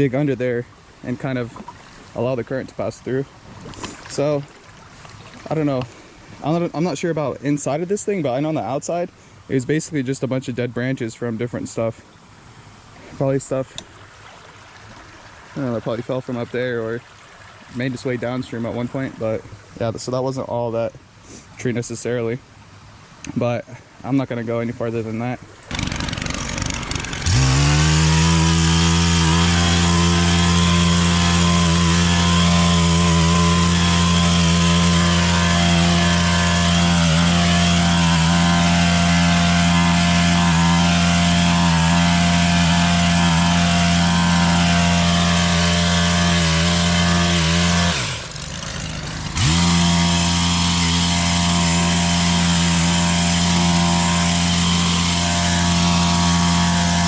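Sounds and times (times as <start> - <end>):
two-stroke engine revving: 25.7 - 57.0.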